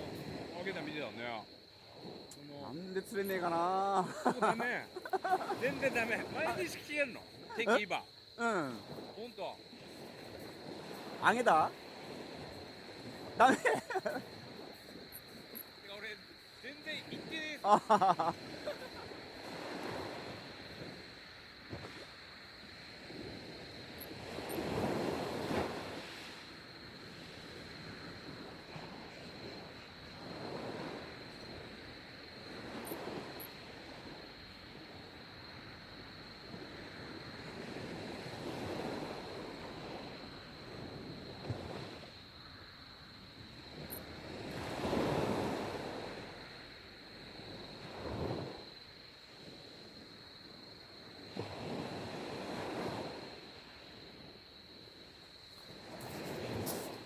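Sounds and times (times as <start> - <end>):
wind buffeting microphone: 0.0 - 42.2
sea waves washing on shore: 0.0 - 57.0.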